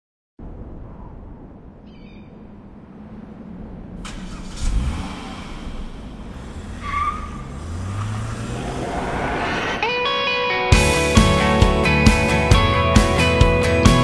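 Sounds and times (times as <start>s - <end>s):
car engine revving: 3.9s - 11.6s.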